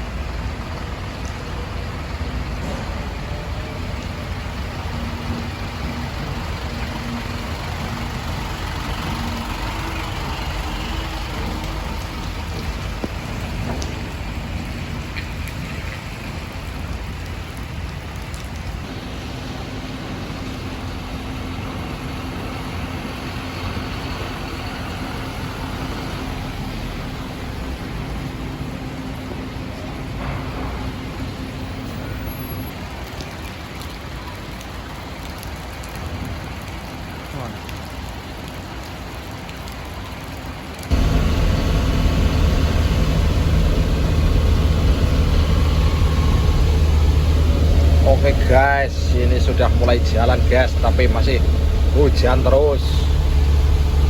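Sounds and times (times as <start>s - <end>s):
truck engine running: 0.0s - 18.1s, 18.7s - 32.7s, 40.9s - 54.0s
rain noise: 0.0s - 54.0s
steady hum: 40.9s - 54.0s.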